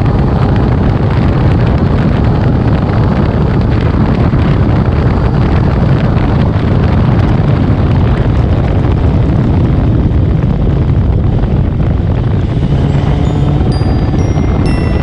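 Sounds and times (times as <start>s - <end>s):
motorcycle engine through loud exhaust: 0.0s - 15.0s
wind noise on microphone: 0.0s - 15.0s
chiming mallet music notes: 12.8s - 15.0s.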